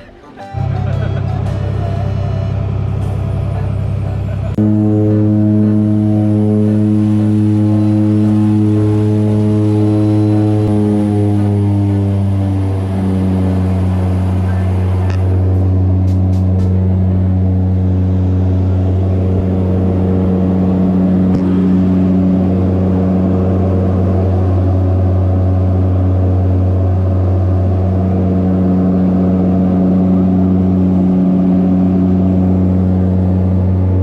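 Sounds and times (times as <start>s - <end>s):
airliner engines droning: 0.0s - 34.0s.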